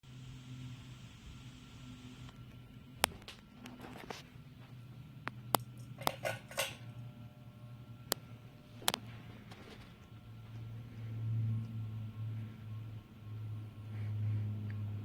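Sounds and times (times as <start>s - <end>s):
faint low hum: 0.0s - 15.0s
sharp clicks and clinks: 5.6s - 6.9s.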